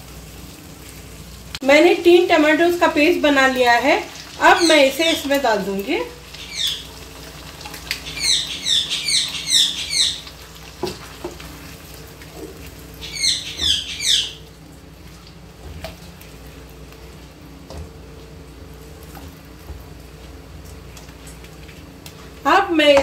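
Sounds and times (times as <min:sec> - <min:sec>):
bird chirping: 0:06.4 - 0:06.9, 0:08.0 - 0:10.3, 0:13.0 - 0:14.4
spatula stirring in frying pan: 0:10.2 - 0:13.0.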